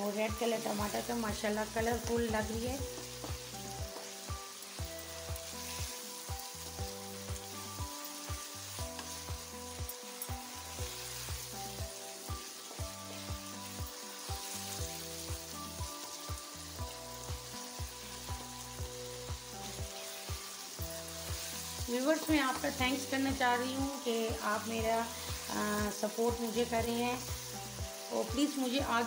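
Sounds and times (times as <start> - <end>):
food sizzling in a pan: 0.0 - 29.0
background music with beat: 1.0 - 24.1.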